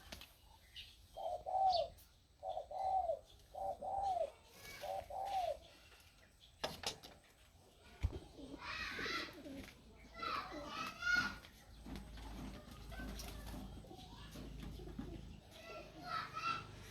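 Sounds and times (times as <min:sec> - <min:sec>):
dove cooing: 0:01.1 - 0:05.7, 0:12.9 - 0:16.6.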